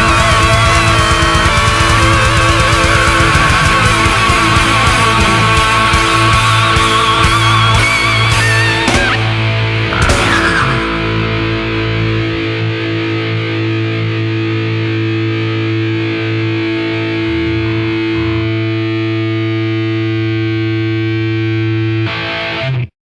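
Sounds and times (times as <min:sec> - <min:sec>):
rock band final hit: 0:00.0 - 0:14.0
distorted electric guitar chord: 0:00.0 - 0:21.8.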